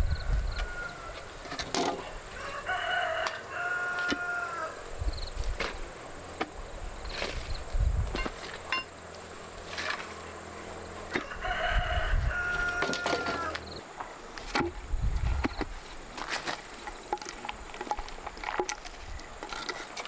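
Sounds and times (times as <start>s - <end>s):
rooster crowing: 0.0s - 1.4s, 2.2s - 4.9s, 11.1s - 13.8s.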